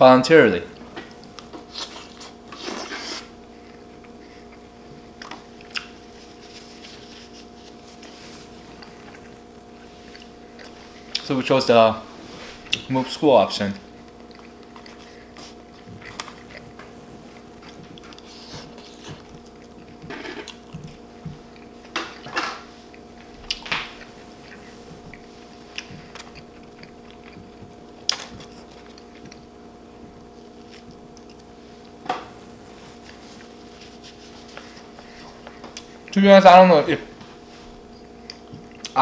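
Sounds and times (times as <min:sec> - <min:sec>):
faint steady hum: 0:00.0 - 0:39.0
chewing and biting: 0:01.2 - 0:11.3, 0:13.8 - 0:32.0.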